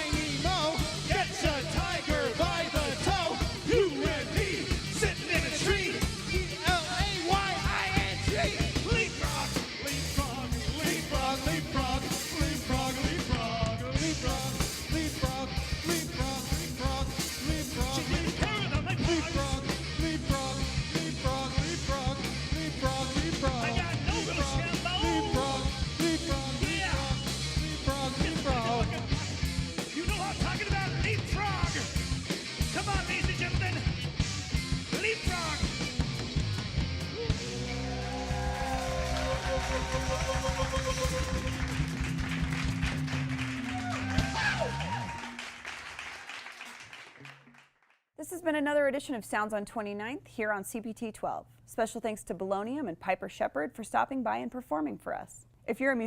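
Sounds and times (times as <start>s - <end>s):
person singing: 0.0s - 29.4s
rock band playing: 0.0s - 45.7s.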